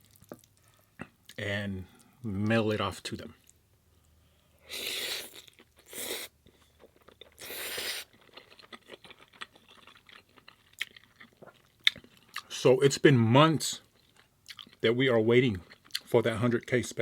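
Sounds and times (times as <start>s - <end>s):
noisy mouth sounds: 4.7s - 6.3s, 7.4s - 8.1s
wet chewing clicks: 6.8s - 12.5s.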